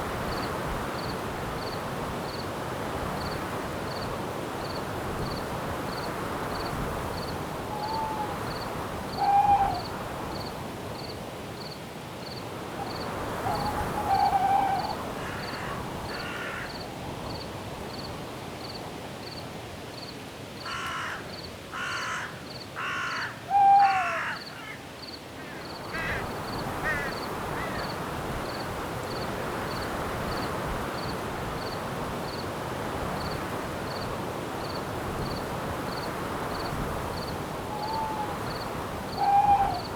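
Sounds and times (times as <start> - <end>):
wind in the leaves: 0.0 - 39.9
insect chirping: 33.2 - 39.9.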